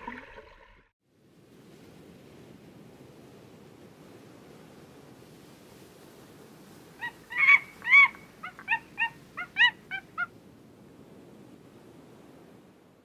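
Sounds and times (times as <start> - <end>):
short high yelping calls: 7.0 - 10.3.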